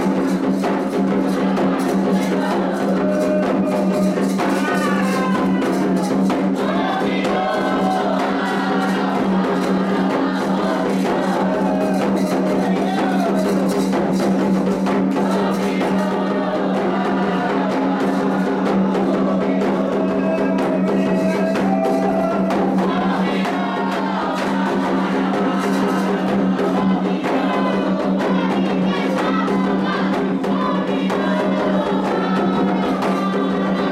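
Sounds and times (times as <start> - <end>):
hand drums beating a rhythm: 0.0 - 33.9
voices singing: 0.0 - 33.9.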